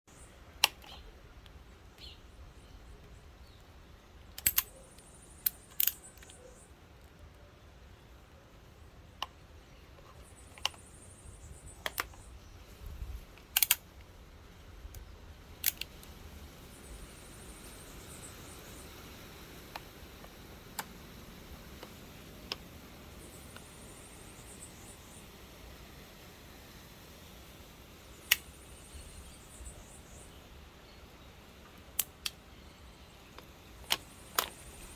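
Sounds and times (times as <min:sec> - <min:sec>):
low steady hiss: 0:00.1 - 0:34.9
metallic airgun clicks: 0:00.6 - 0:01.6, 0:04.3 - 0:06.5, 0:13.3 - 0:14.1, 0:15.6 - 0:16.1, 0:28.2 - 0:29.0, 0:31.7 - 0:32.4, 0:33.4 - 0:34.9
faint sharp clicks: 0:00.6 - 0:02.1, 0:04.3 - 0:07.4, 0:10.0 - 0:11.1, 0:11.7 - 0:12.4, 0:13.3 - 0:16.2, 0:17.7 - 0:25.2, 0:28.2 - 0:30.3, 0:31.6 - 0:34.9.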